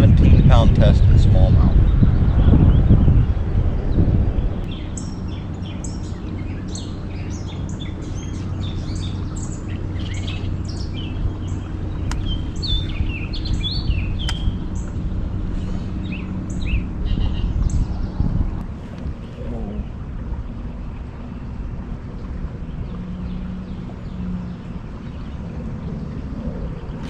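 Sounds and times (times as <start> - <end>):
songbirds chirping: 0.0 - 27.0
steady low hum: 0.0 - 27.0
sharp clicks: 14.2 - 14.5.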